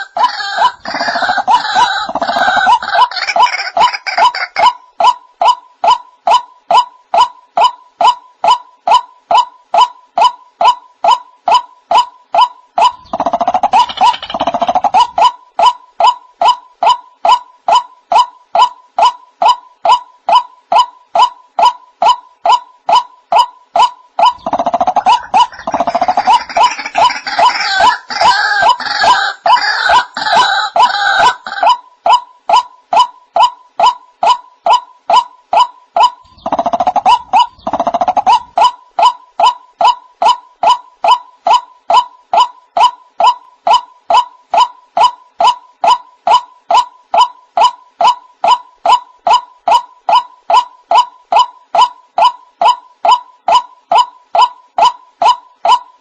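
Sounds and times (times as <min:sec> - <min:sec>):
waterhen calling: 0:00.0 - 0:05.2, 0:24.2 - 0:31.8
fast churring rattle: 0:13.0 - 0:15.1, 0:24.3 - 0:28.2.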